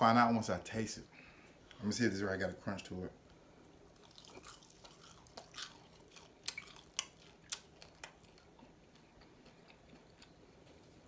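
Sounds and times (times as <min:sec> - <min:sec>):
person chewing crisp bacon: 0:03.8 - 0:11.0.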